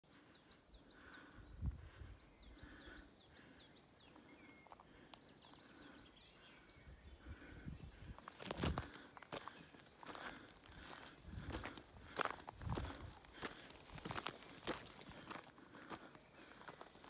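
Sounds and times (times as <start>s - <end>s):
footsteps on dirt trail: 4.1s - 6.1s, 7.3s - 17.0s.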